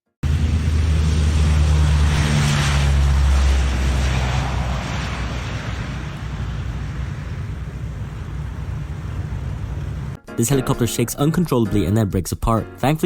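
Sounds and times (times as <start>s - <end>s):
deep propeller drone: 0.1s - 10.2s.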